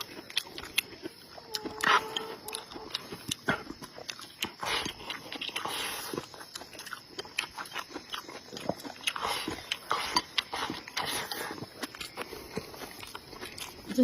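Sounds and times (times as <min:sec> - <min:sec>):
person chewing with wet smacks: 0:00.0 - 0:14.0.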